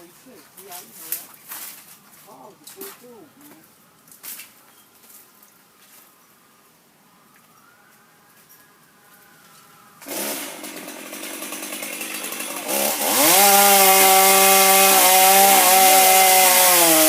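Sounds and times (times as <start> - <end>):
chainsaw revving: 10.0 - 17.0.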